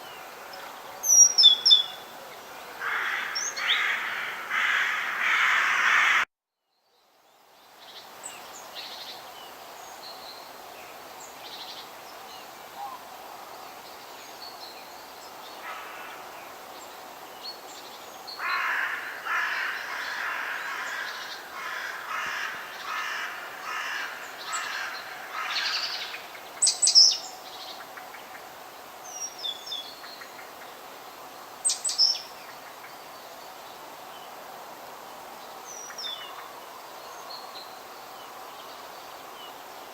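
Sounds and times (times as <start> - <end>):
steady background hiss: 0.0 - 39.9
crow cawing: 2.8 - 6.3, 15.6 - 16.2, 18.4 - 26.1
songbird chirps: 24.0 - 34.5.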